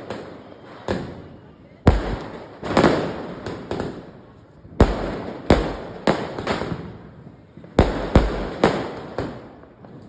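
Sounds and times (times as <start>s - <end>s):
firecrackers banging: 1.9s - 4.0s, 4.8s - 7.1s, 7.8s - 10.0s.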